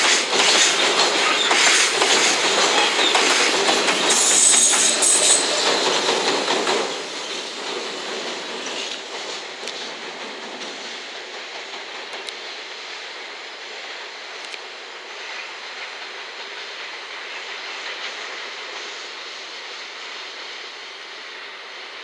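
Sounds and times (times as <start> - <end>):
freight train clattering over rail joints: 0.0 - 12.8
high-pitched wheel squeal: 4.1 - 5.8.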